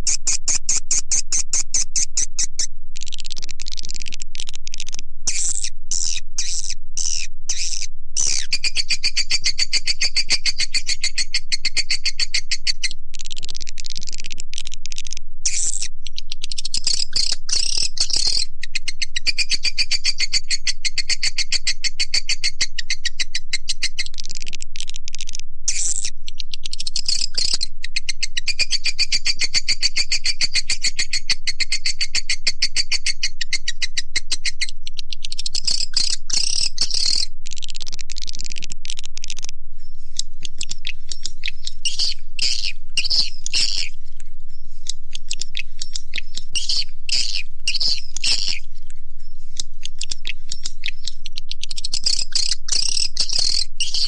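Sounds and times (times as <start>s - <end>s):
swiftlets twittering: 40.5s - 54.0s.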